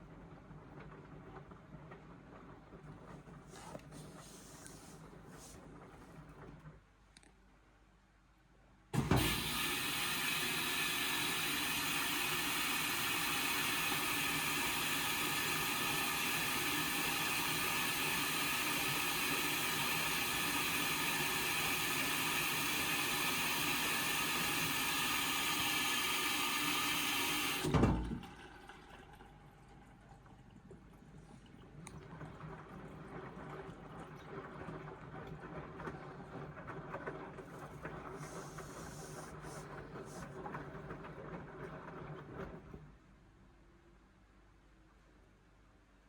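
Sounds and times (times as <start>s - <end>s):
washing machine filling with water: 0.0s - 6.8s, 8.9s - 43.2s.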